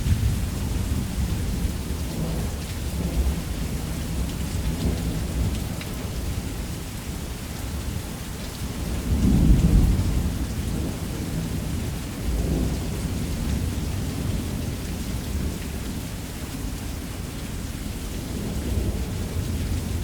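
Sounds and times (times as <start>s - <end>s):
low rolling thunder: 0.0s - 6.3s, 8.8s - 16.0s
heavy rain: 0.0s - 20.0s.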